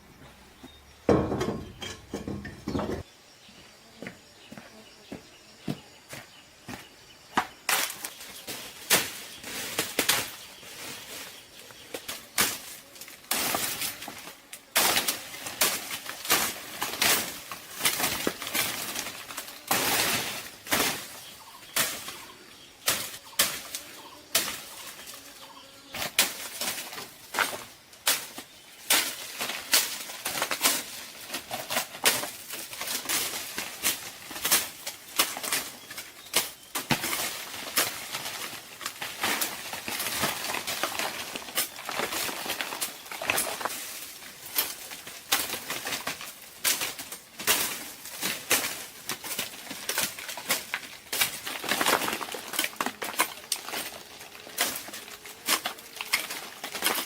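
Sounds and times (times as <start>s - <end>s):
rustles scrapes and knocks: 1.1s - 3.1s, 7.4s - 57.0s.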